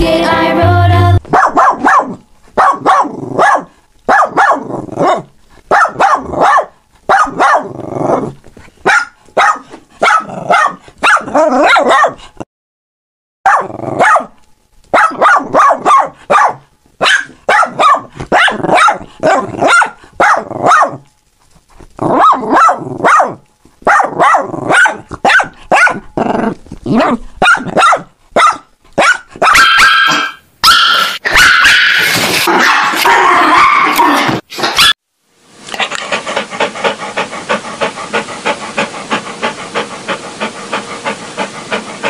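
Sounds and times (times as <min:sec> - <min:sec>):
dogs barking: 0:01.2 - 0:07.8, 0:08.8 - 0:12.2, 0:13.5 - 0:21.0, 0:22.1 - 0:26.1, 0:27.0 - 0:34.0, 0:34.6 - 0:35.0
rough hissy noise: 0:34.5 - 0:42.0.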